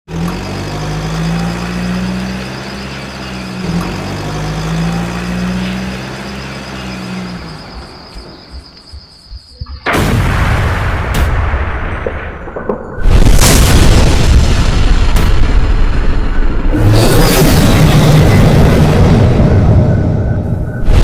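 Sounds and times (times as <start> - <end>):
sudden loud blast of noise: 9.8 - 12.0, 13.0 - 21.0.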